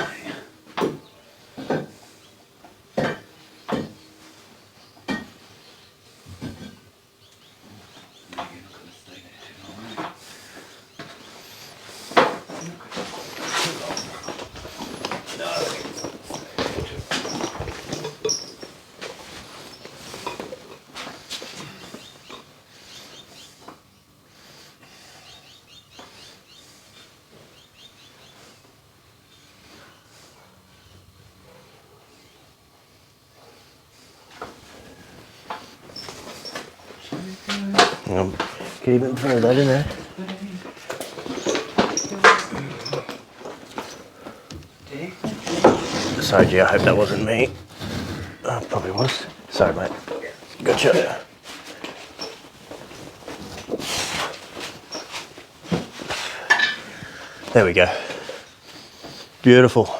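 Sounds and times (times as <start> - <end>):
knocks and clattering handling noise: 2.6 - 5.5, 6.3 - 6.9, 11.0 - 22.5, 34.3 - 57.3.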